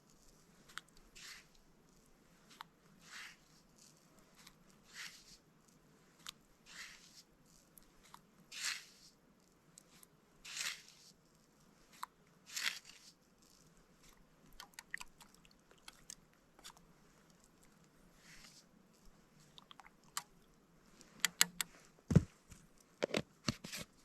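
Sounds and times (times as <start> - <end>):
small clicks and crunches: 11.9 - 17.9
person eating and drinking: 14.5 - 16.8.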